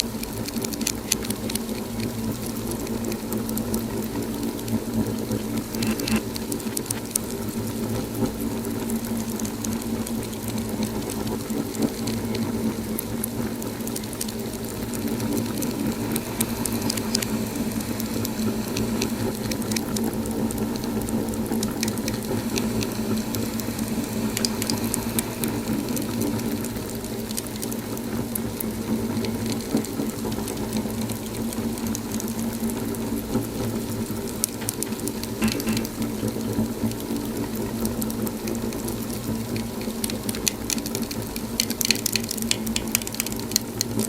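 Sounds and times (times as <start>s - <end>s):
wood fire crackling and popping: 0.0s - 44.0s.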